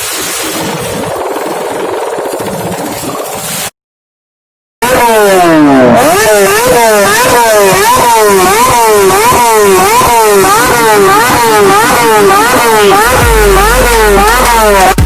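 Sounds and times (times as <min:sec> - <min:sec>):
small petrol engine revving: 0:04.8 - 0:15.0.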